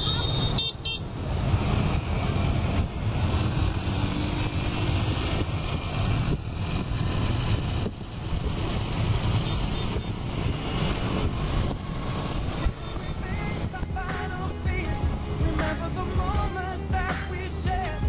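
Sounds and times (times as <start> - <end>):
road noise: 0.0 - 18.0
wind buffeting microphone: 1.3 - 14.1.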